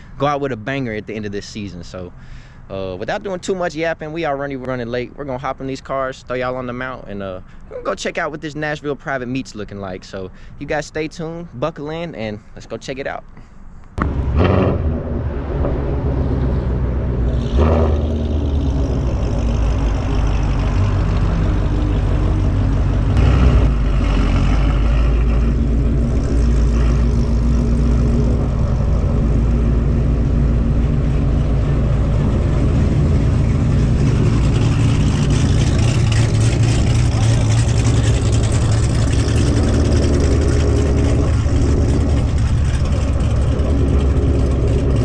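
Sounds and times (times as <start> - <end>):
car engine running: 14.0 - 45.0.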